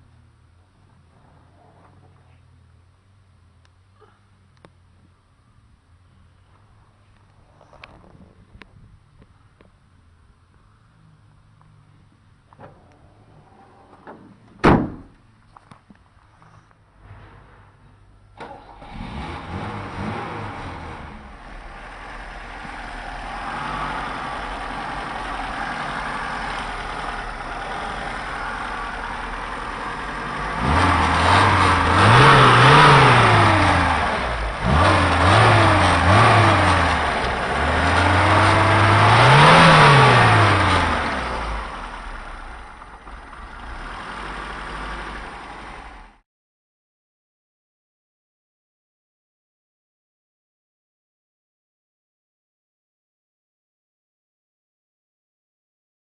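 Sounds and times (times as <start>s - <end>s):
car engine idling and revving: 0.0s - 14.5s, 18.1s - 46.2s.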